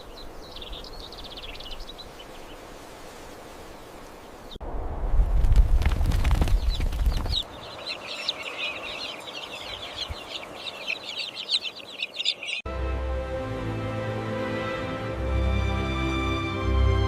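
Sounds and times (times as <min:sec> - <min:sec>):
small birds chirping rapidly: 0:00.0 - 0:04.6, 0:05.8 - 0:12.6
low rumble with crackles: 0:04.6 - 0:07.5
background music with held notes: 0:12.7 - 0:17.0.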